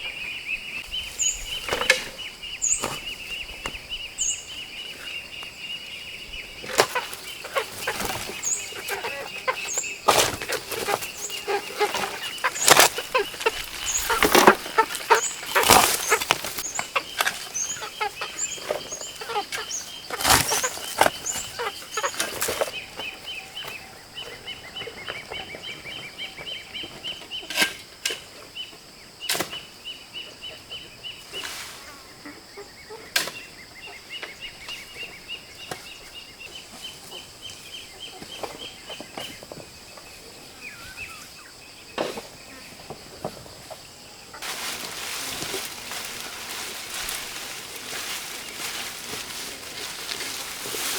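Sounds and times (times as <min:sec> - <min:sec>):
high insect drone: 0:00.0 - 0:50.9.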